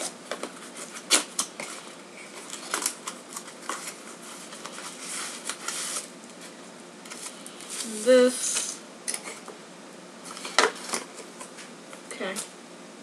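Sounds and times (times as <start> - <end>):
packaging rustling and crinkling: 0.0 - 9.4.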